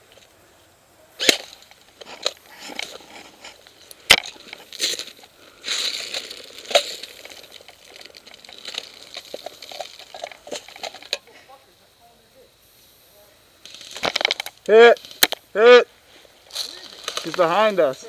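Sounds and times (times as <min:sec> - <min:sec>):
rustling and crunching: 0:00.0 - 0:11.5, 0:13.6 - 0:18.0
loud sharp cracks: 0:01.2 - 0:02.4.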